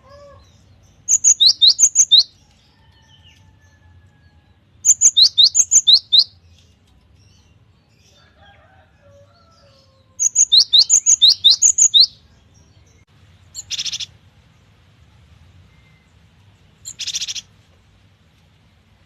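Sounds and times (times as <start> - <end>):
bird whistled song: 1.0 - 2.4, 4.8 - 6.4, 10.2 - 12.2, 13.5 - 14.1, 16.8 - 17.5
harsh buzzy bird call: 10.2 - 12.1.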